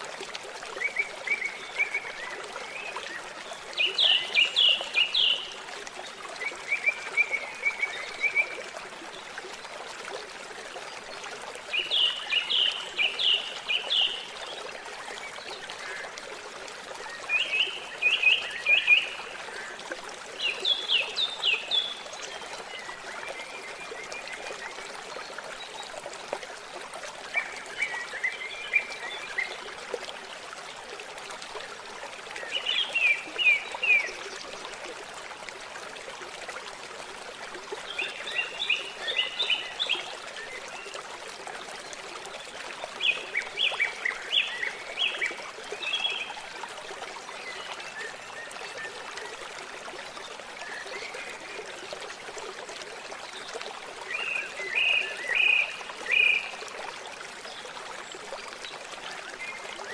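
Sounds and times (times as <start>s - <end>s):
water trickling: 0.0s - 59.9s.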